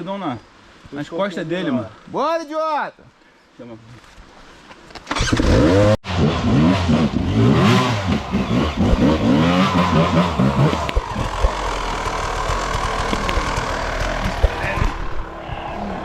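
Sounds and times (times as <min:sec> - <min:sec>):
dirt bike engine revving: 0:05.1 - 0:16.0.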